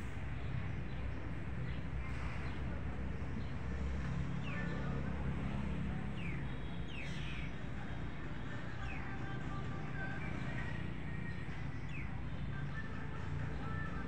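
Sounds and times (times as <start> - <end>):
small birds chirping: 5.9 - 14.0.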